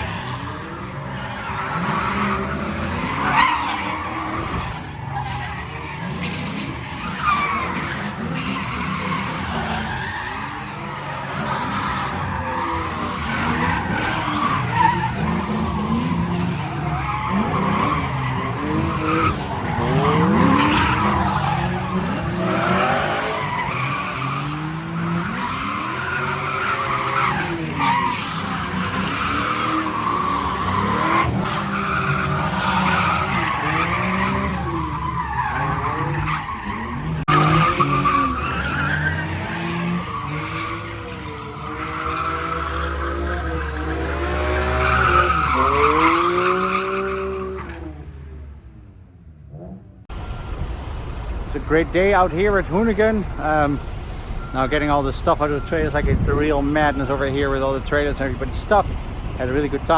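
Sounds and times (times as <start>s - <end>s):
tyres squealing: 0.0s - 47.8s
car engines revving: 0.0s - 59.9s.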